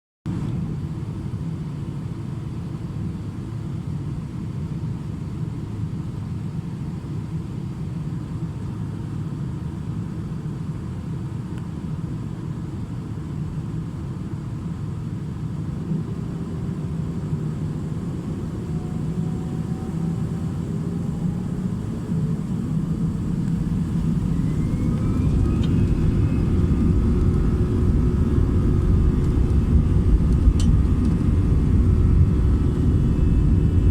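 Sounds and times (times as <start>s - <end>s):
airplane cabin rumble: 0.3s - 33.9s
faint rising whines: 13.5s - 33.9s.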